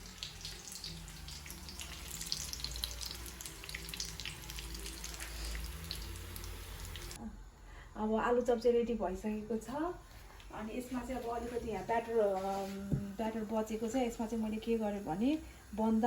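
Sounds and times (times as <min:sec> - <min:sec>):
food sizzling in hot oil: 0:00.0 - 0:07.2, 0:10.8 - 0:16.0.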